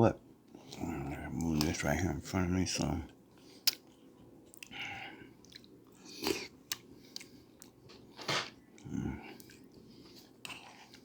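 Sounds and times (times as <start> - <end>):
mouth chewing with wet clicks: 2.8 - 7.8, 8.7 - 11.0.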